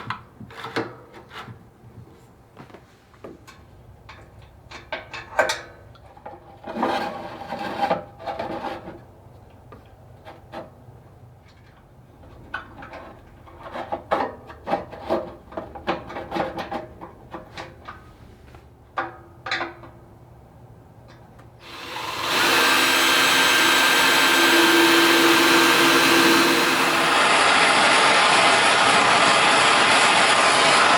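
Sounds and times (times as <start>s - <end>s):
loud steady machine running: 21.6s - 30.7s.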